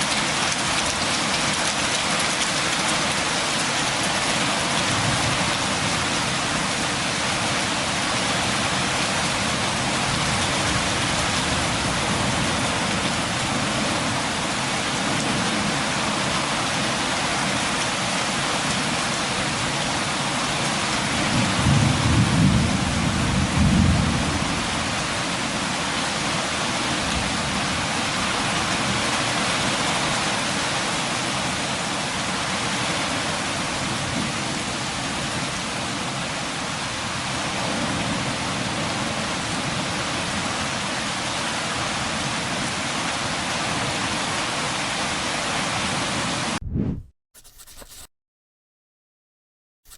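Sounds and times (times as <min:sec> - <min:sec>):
steady rain: 0:00.0 - 0:46.4
low rumble of thunder: 0:21.3 - 0:24.8.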